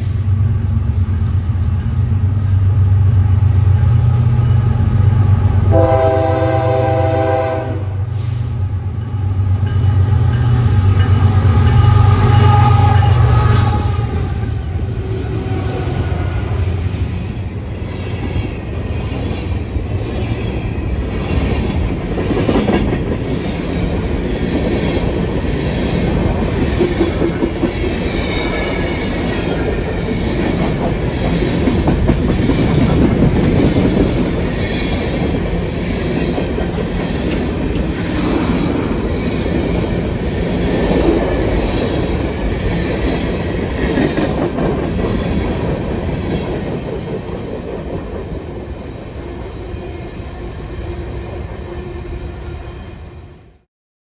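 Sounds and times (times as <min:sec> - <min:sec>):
train wheels rumbling on rail: 0:00.0 - 0:51.7
wheels squealing on rail: 0:08.1 - 0:21.5
wheels clickety-clack on rail joints: 0:18.0 - 0:48.7.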